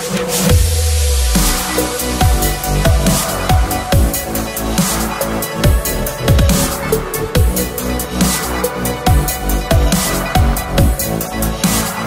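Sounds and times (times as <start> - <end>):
electronic dance music: 0.0 - 12.0
deep kick drums: 0.4 - 4.7, 5.5 - 7.8, 9.1 - 11.2.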